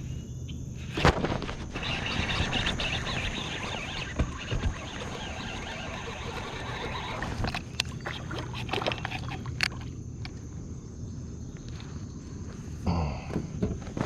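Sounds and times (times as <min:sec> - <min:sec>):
knocks and clicks in kayak: 0:03.9 - 0:10.4.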